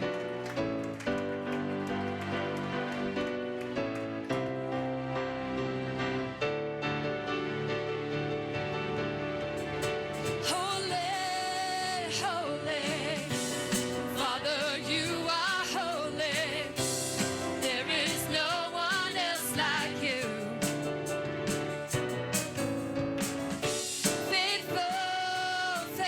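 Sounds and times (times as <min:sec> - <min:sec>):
keyboard and band accompaniment: 0:00.0 - 0:26.0
solo voice singing with vibrato: 0:10.5 - 0:20.6, 0:24.3 - 0:26.0.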